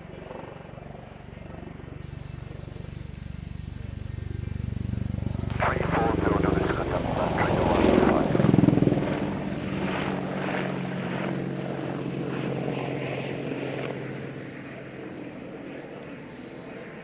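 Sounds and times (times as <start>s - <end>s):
aircraft engine droning: 0.0s - 17.0s.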